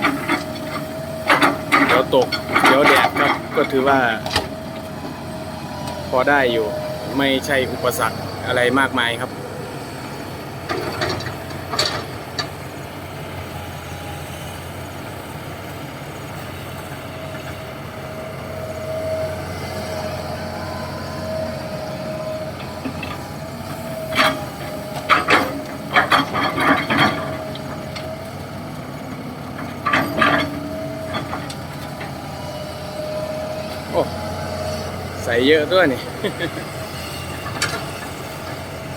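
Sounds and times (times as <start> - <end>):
diesel engines running with whine: 0.0 - 38.9.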